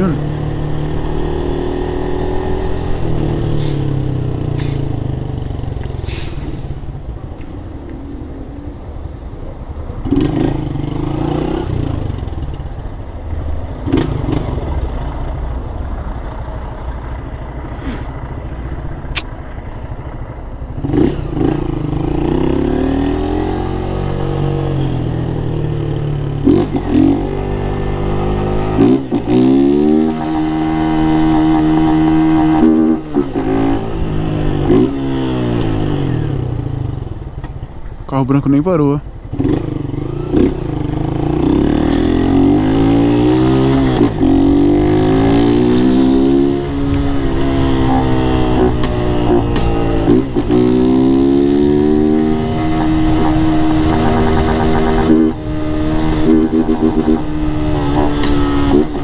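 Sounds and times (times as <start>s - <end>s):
motorcycle engine revving: 0.0s - 6.1s, 10.0s - 12.7s, 13.8s - 15.3s, 20.7s - 37.1s, 39.2s - 59.0s.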